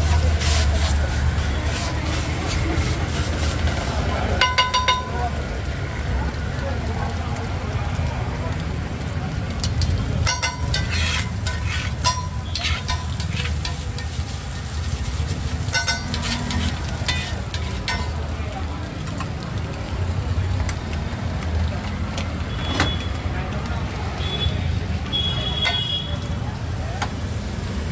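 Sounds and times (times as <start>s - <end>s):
eggs sizzling: 0.0s - 27.9s
spatula clattering on griddle: 4.4s - 5.3s, 9.5s - 18.4s.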